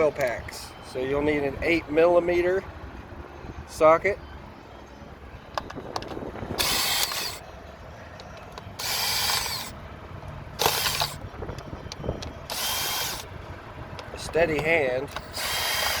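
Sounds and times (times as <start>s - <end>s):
socket tool whirring: 5.9s - 7.5s, 8.5s - 9.8s, 10.6s - 11.3s, 12.4s - 13.3s, 14.6s - 16.0s.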